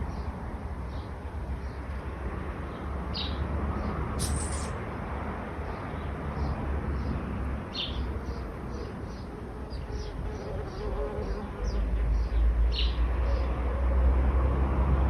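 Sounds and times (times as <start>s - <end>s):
road traffic rumble: 0.0s - 15.0s
small birds chirping: 2.6s - 4.8s, 5.6s - 13.5s
sharp bird call: 4.2s - 4.8s.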